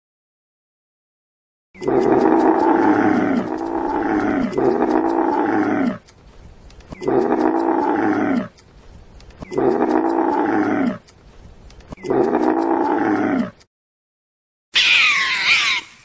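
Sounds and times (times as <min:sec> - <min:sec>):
animal calling: 0:01.8 - 0:06.1, 0:06.9 - 0:08.6, 0:09.4 - 0:11.0, 0:14.8 - 0:16.0.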